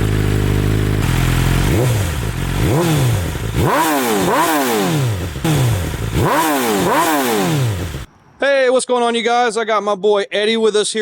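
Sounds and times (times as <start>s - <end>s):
motorbike engine revving: 0.0s - 8.1s.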